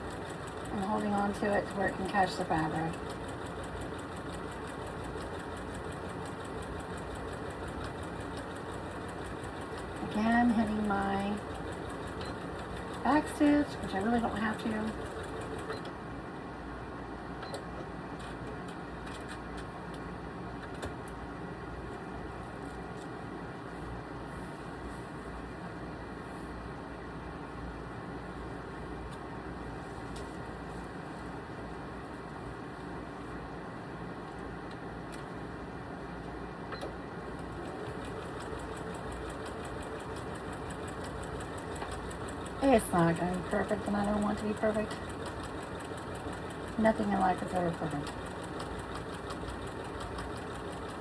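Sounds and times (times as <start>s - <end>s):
sewing machine running: 0.0s - 15.8s, 37.5s - 51.0s
sewing machine clicks: 36.8s - 51.0s.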